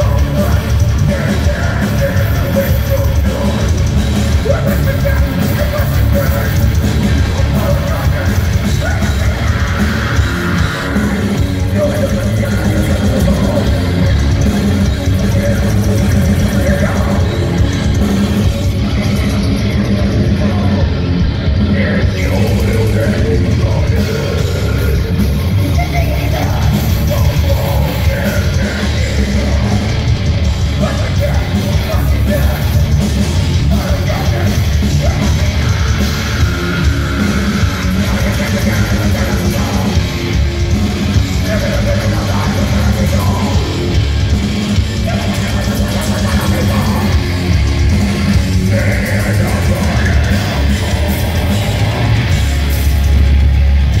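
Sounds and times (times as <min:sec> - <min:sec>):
distorted guitars: 0:00.0 - 0:54.0
drums: 0:00.0 - 0:54.0.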